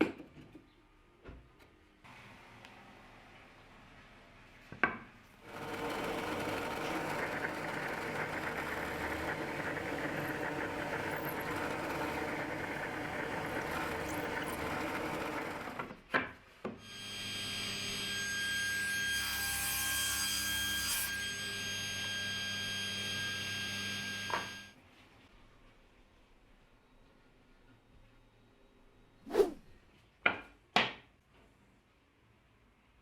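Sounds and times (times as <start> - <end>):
handheld power tool running: 5.5 - 15.7.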